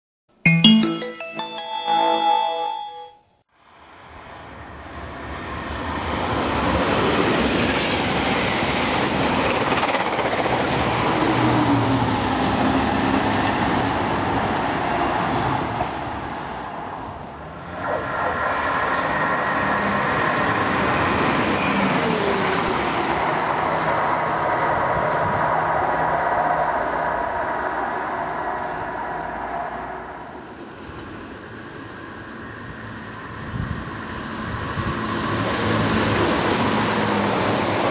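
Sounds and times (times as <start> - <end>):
train wheels rumbling on rail: 5.4 - 16.8.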